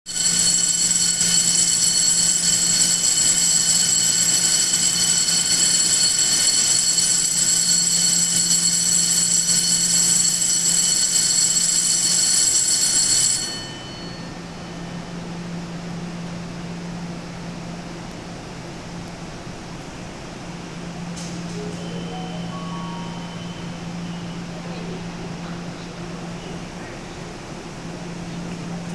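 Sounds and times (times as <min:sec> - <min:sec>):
electric departure bell ringing: 0:00.1 - 0:17.3, 0:20.9 - 0:26.1
electric train humming: 0:00.1 - 0:28.9.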